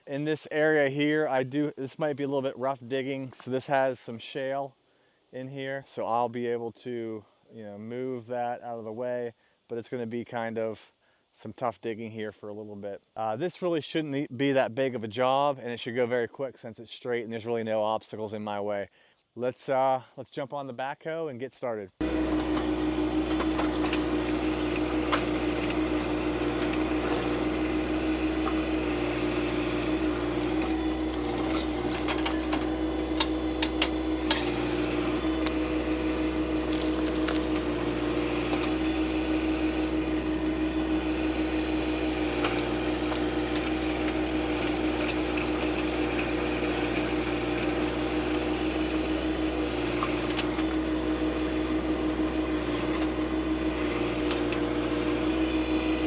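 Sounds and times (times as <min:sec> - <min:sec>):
diesel tractor engine running: 0:22.0 - 0:56.0.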